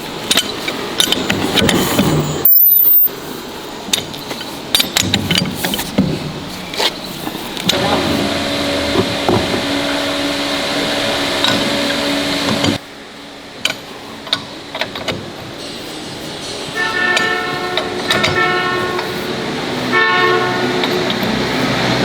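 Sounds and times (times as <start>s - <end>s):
motorized tool humming: 7.7s - 12.8s.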